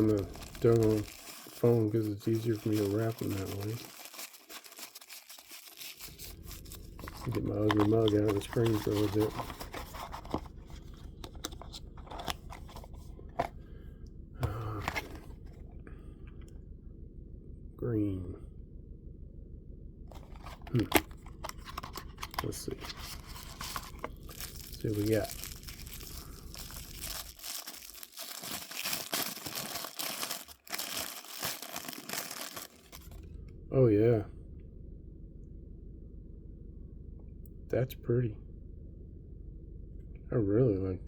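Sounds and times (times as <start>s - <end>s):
packaging crunching and tearing: 0.0s - 13.5s, 14.5s - 15.2s, 20.1s - 33.2s
packaging rustle: 0.0s - 13.6s, 14.4s - 15.6s, 20.1s - 33.2s.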